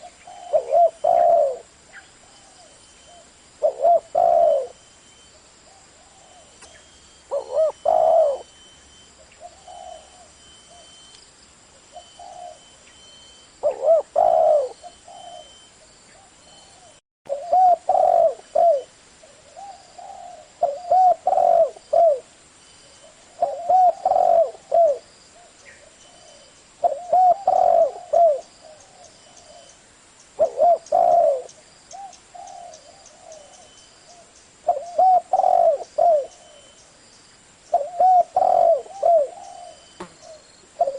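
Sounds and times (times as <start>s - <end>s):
dove cooing: 0.0s - 4.8s, 5.7s - 8.6s, 9.2s - 11.0s, 11.9s - 12.8s, 13.6s - 22.3s, 23.0s - 29.8s, 30.4s - 36.8s, 37.7s - 40.9s.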